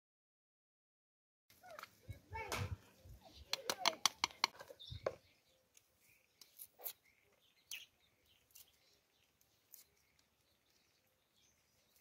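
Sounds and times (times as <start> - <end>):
faint bird chirps: 4.4 - 12.0.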